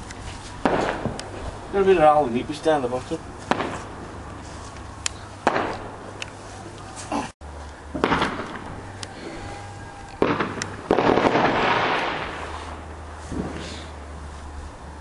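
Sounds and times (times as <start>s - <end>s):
fireworks exploding: 0.5s - 2.6s, 3.4s - 6.2s, 7.9s - 8.9s, 10.1s - 13.9s.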